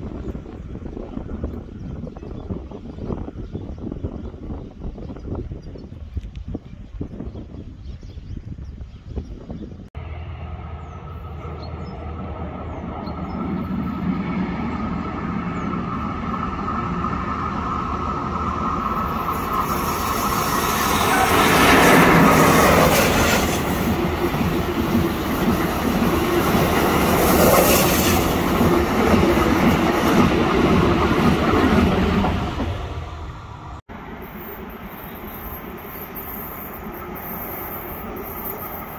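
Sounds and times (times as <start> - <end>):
train wheels rumbling and clattering: 11.6 - 38.9.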